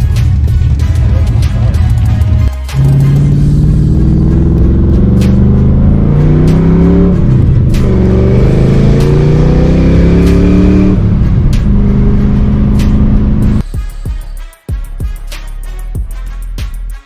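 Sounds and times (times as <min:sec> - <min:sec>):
car engine accelerating: 0:02.8 - 0:13.6.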